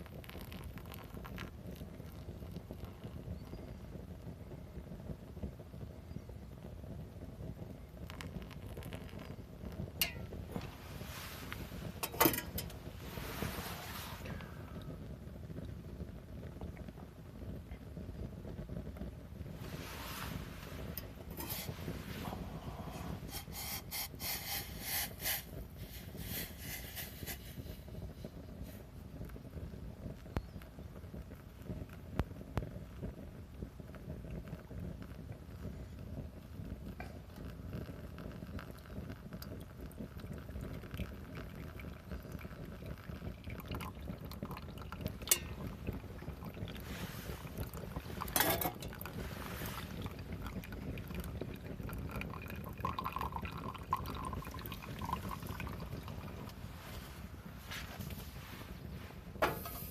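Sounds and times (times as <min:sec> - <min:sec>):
firewood crackles and scrapes: 0:00.1 - 0:04.2, 0:07.4 - 0:16.7, 0:17.4 - 0:59.9
rushing hiss: 0:21.4 - 0:27.7.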